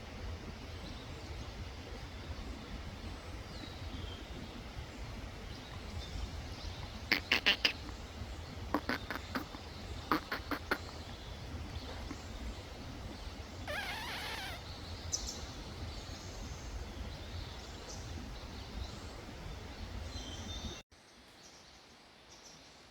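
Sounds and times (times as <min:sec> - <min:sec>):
steady low rumble: 0:00.0 - 0:20.8
faint high chirps: 0:05.6 - 0:19.6
warbling animal call: 0:06.8 - 0:15.7.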